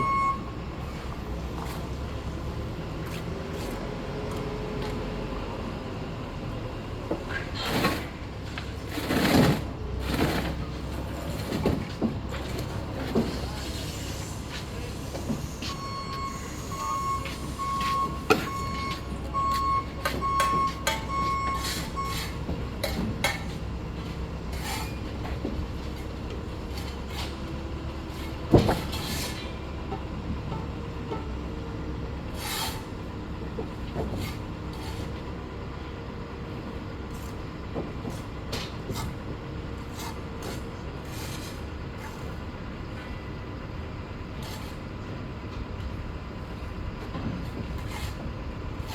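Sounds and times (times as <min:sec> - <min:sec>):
regular beeping: 0:00.0 - 0:00.5, 0:15.6 - 0:22.4
low engine rumble: 0:00.0 - 0:48.9.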